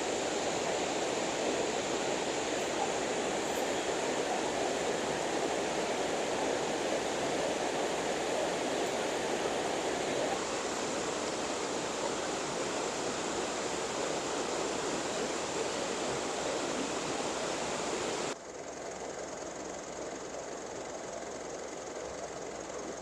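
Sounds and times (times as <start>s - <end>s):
river water rushing over rocks: 0.0s - 18.4s.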